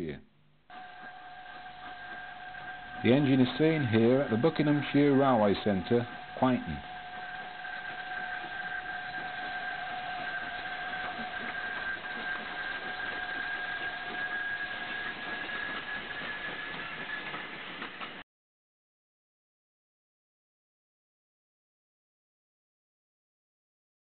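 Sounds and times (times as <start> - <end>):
high two-note whine: 0.7 - 13.2
moving train running noise: 0.7 - 18.2.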